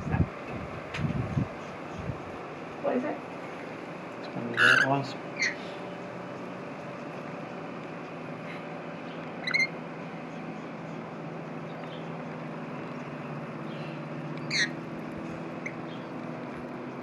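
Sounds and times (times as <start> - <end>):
steady low hum: 0.0 - 17.0
parrot shrill screeches: 4.5 - 5.6, 9.4 - 9.8, 14.5 - 14.8
faint bird chirp: 4.5 - 7.0, 8.4 - 12.2, 12.8 - 14.8.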